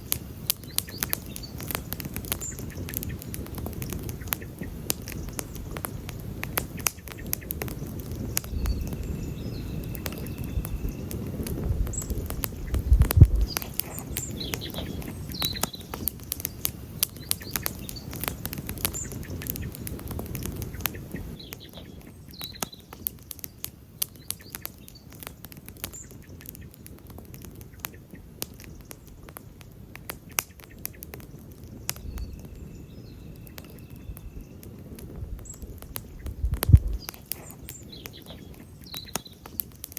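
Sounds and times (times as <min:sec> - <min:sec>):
campfire crackling and popping: 0:00.0 - 0:39.9
low rumble of flames: 0:00.0 - 0:39.9
bird chirps: 0:00.4 - 0:06.0, 0:06.7 - 0:19.8, 0:20.5 - 0:25.3, 0:31.7 - 0:39.7.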